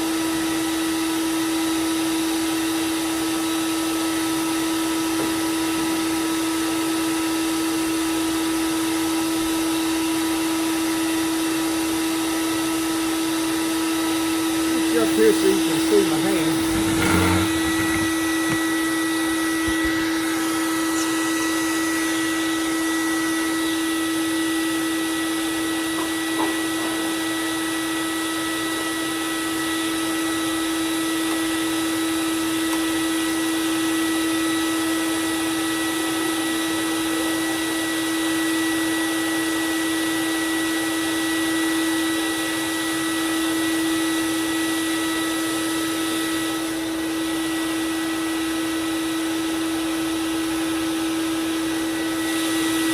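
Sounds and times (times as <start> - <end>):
belt sander motor whine: 14.8 - 24.0.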